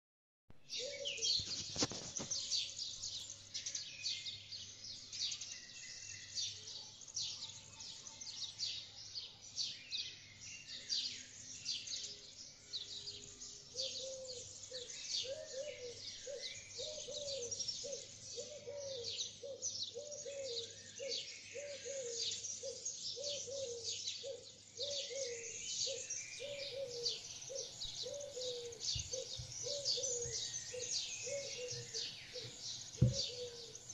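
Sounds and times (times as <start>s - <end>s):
birds twittering: 0.7s - 33.9s.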